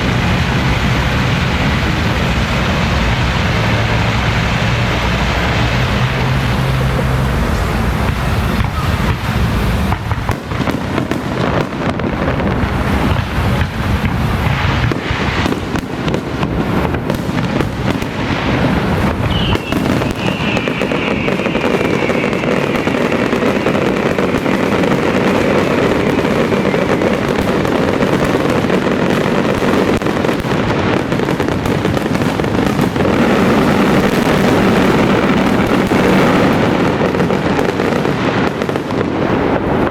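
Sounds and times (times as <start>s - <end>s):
fireworks crackling: 0.0s - 39.9s
high falling whistle: 19.2s - 23.8s.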